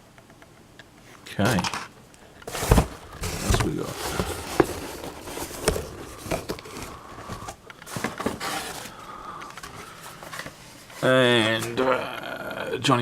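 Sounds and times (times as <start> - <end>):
packaging rustling and clicking: 2.4 - 11.8.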